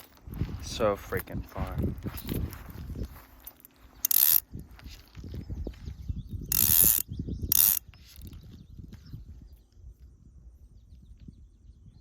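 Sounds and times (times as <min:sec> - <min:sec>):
low rumbling handling noise: 0:00.0 - 0:09.4
fishing reel ratcheting: 0:03.4 - 0:04.5, 0:06.5 - 0:08.4.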